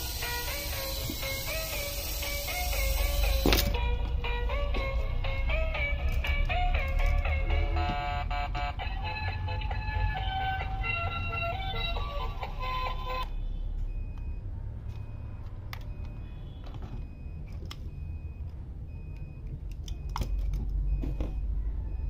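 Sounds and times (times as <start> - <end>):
background music: 3.0 - 13.2.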